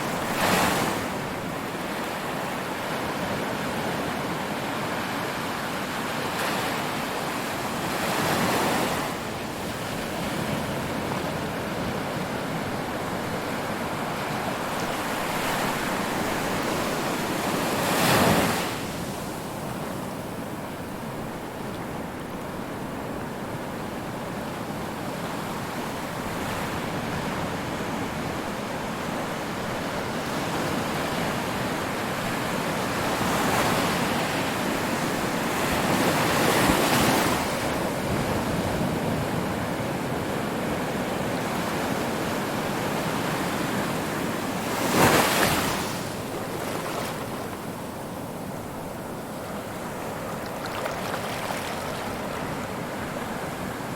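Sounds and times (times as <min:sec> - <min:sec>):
ocean waves breaking: 0:41.4 - 0:53.9.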